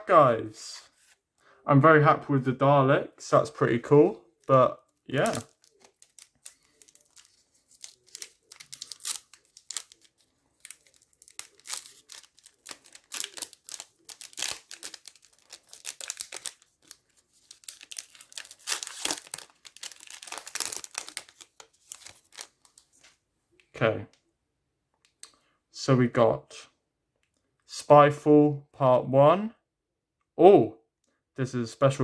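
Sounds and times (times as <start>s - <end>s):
plastic wrapper tearing and crinkling: 4.4s - 23.1s.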